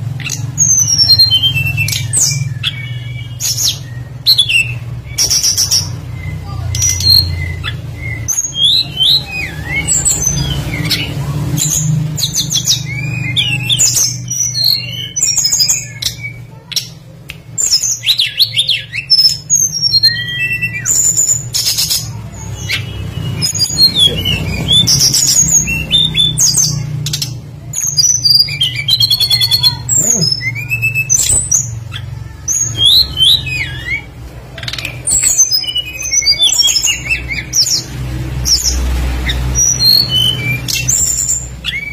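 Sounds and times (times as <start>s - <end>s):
songbird singing: 0.0s - 41.9s.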